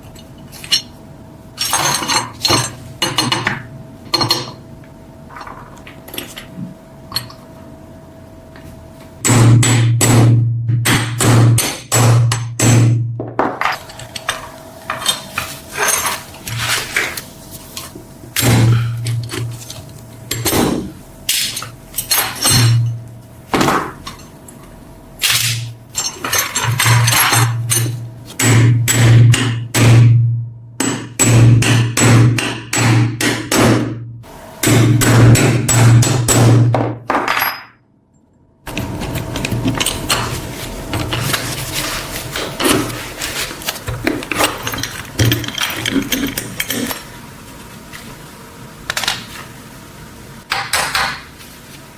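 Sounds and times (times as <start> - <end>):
hammer strikes and knocks: 9.2 - 13.7, 30.8 - 34.0, 34.6 - 37.6.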